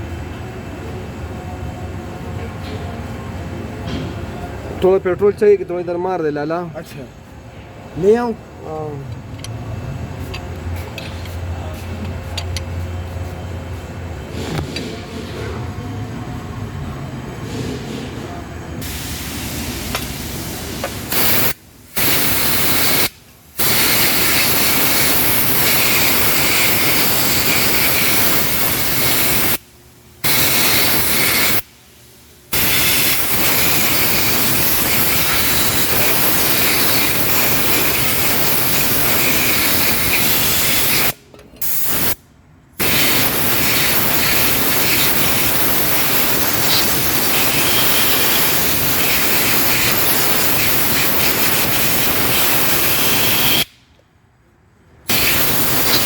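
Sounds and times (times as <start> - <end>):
spray gun air hissing: 18.8 - 29.6, 30.2 - 42.2, 42.8 - 53.8, 55.1 - 56.0.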